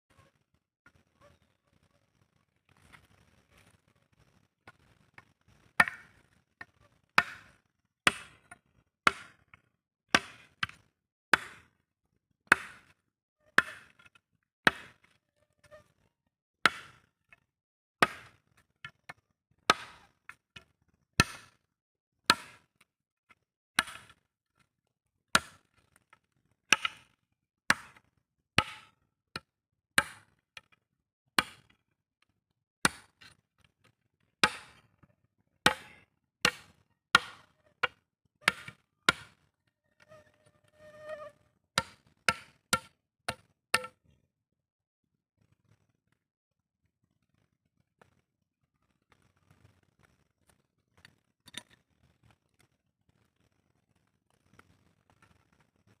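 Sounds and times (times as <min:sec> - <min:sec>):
wood being chopped: 0:05.8 - 0:06.2, 0:07.2 - 0:09.5, 0:10.1 - 0:11.7, 0:12.5 - 0:12.9, 0:13.6 - 0:15.0, 0:16.7 - 0:17.0, 0:18.0 - 0:18.4, 0:19.7 - 0:21.5, 0:22.3 - 0:22.6, 0:23.8 - 0:24.2, 0:25.4 - 0:25.6, 0:27.7 - 0:28.0, 0:28.6 - 0:30.7, 0:31.4 - 0:31.7, 0:32.8 - 0:33.4, 0:34.4 - 0:34.8, 0:35.6 - 0:39.4, 0:41.8 - 0:44.0.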